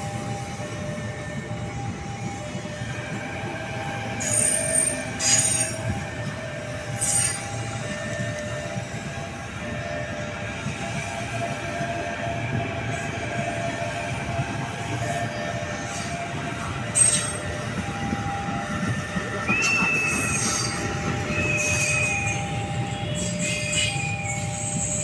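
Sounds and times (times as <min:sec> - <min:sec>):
train rumbling past: 0:00.0 - 0:25.0
ringing wheel squeal: 0:04.1 - 0:06.0, 0:06.9 - 0:09.0, 0:16.8 - 0:25.0.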